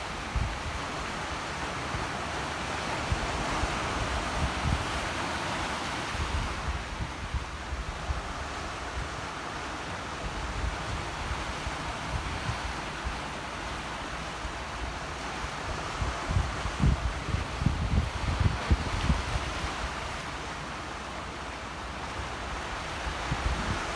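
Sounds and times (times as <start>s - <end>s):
sea waves surf: 0.0s - 23.9s
wind buffeting microphone: 15.7s - 20.0s.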